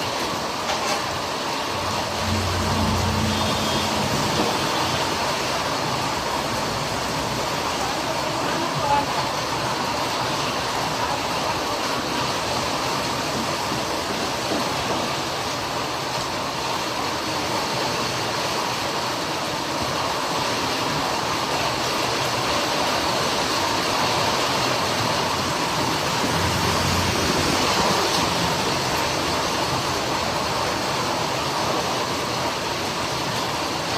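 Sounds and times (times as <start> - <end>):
heavy rain pouring: 0.0 - 33.9
low rumble: 1.7 - 4.8.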